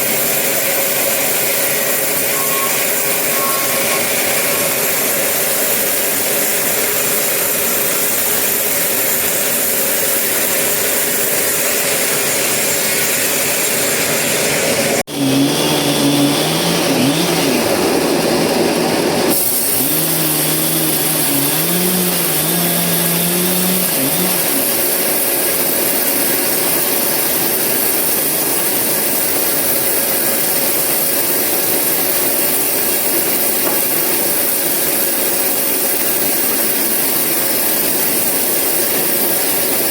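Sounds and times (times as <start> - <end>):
sawmill saw cutting logs: 0.0 - 39.9
wavering pitched hum: 2.1 - 5.8, 15.1 - 18.2, 19.4 - 25.4.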